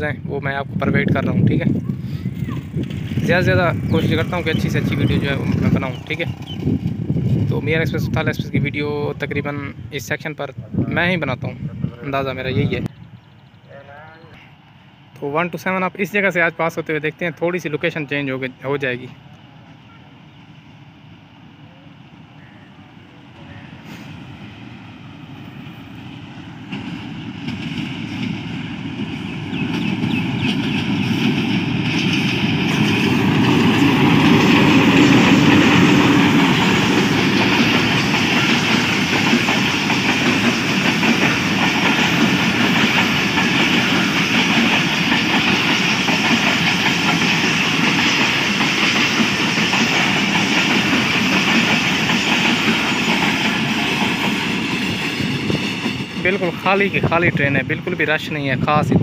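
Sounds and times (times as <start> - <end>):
diesel locomotive passing: 0.0 - 59.0
wheel-on-rail noise: 1.7 - 7.5, 24.4 - 56.9.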